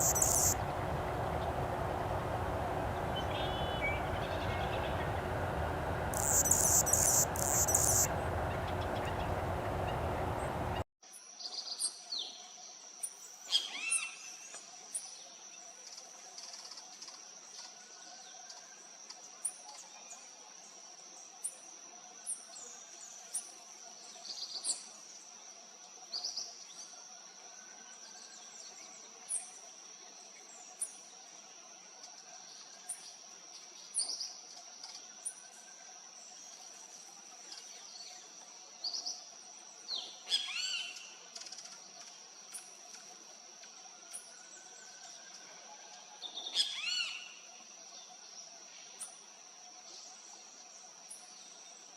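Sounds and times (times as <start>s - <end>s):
faint low hum: 0.0s - 10.8s
high-pitched whine: 0.0s - 10.8s
songbird high chirps: 0.0s - 10.8s
songbird song phrases: 0.0s - 10.8s, 35.2s - 43.0s.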